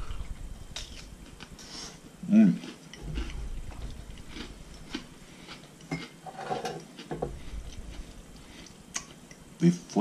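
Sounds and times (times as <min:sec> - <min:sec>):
person chewing food: 0:00.0 - 0:09.5
small crunches and mouth clicks: 0:02.6 - 0:06.2, 0:06.8 - 0:09.4.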